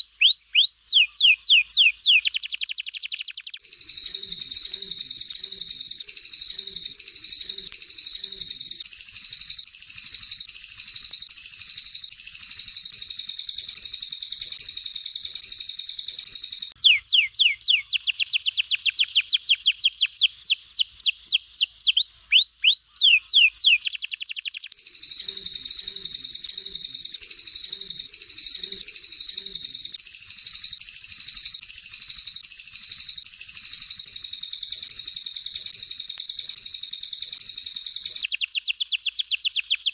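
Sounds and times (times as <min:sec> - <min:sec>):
canary trilling and warbling: 0:00.0 - 0:09.8, 0:16.7 - 0:30.5, 0:38.1 - 0:39.9
descending whistled bird notes: 0:00.0 - 0:39.9.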